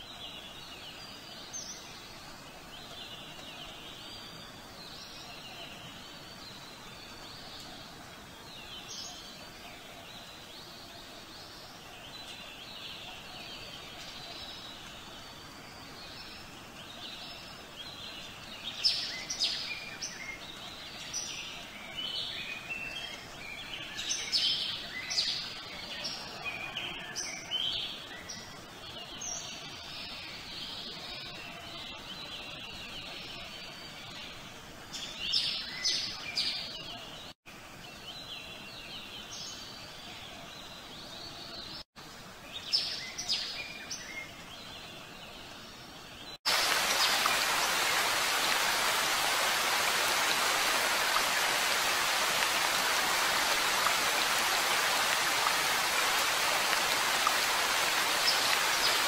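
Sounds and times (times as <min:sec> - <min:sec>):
outdoor background hiss: 0:00.0 - 0:59.0
birds chirping: 0:42.6 - 0:59.0.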